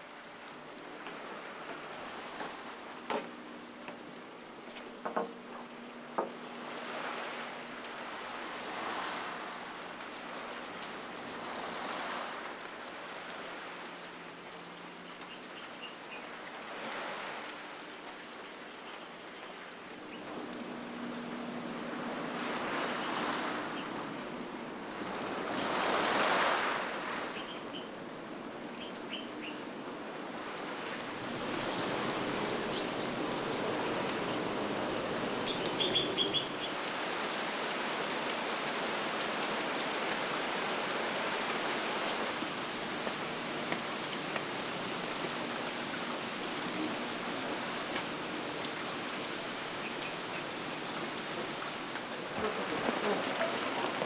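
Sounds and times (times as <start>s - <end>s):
steady rain falling: 0.0s - 54.0s
bird chirps: 35.4s - 36.8s.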